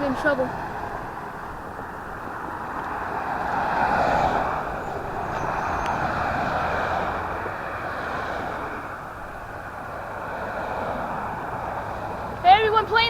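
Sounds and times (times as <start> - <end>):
vehicle rushing roar: 0.0 - 13.0.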